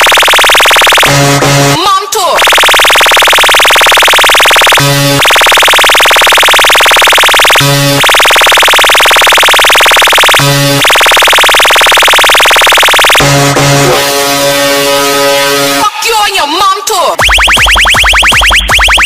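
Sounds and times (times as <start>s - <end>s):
buzzing synth tone: 0.0s - 1.8s, 2.4s - 15.8s
loud electronic music: 0.0s - 1.8s, 2.4s - 19.0s
low honk-like blast: 1.1s - 1.8s, 13.2s - 15.8s.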